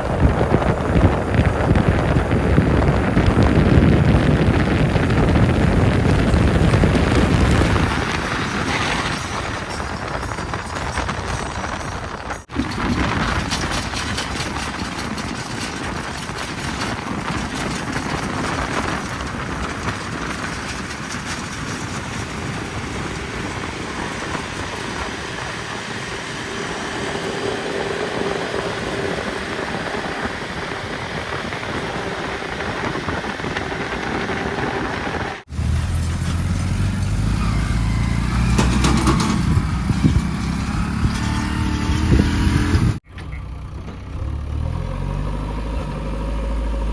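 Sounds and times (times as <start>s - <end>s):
heavy diesel machinery running: 0.0s - 46.9s
deeper engine note: 23.0s - 46.9s.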